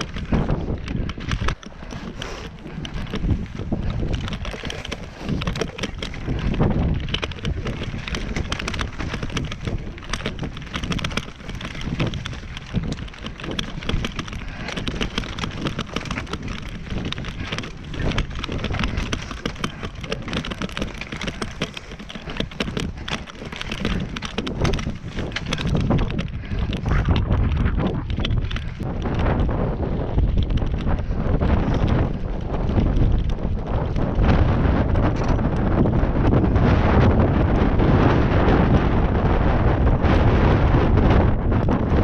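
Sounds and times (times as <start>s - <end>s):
crackling and rustling: 0.0s - 42.0s
wind buffeting microphone: 0.0s - 42.0s.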